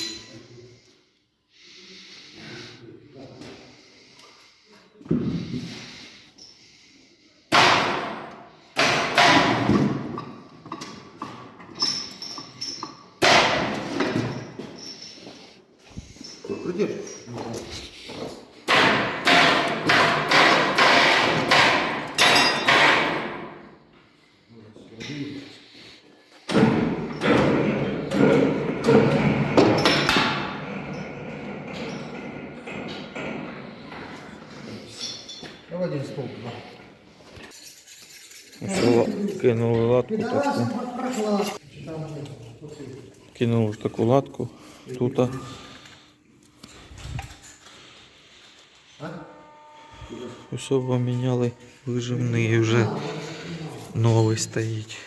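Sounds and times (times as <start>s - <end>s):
loud knocks and thuds: 26.5s - 30.5s.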